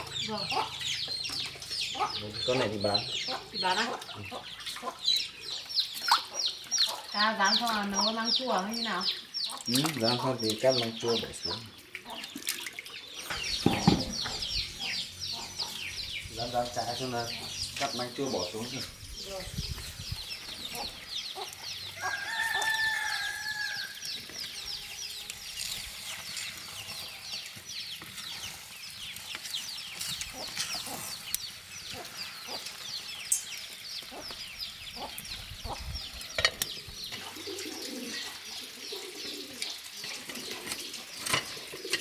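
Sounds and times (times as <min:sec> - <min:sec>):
sharp knocks: 0:13.6 - 0:14.4
rooster crowing: 0:22.0 - 0:24.1.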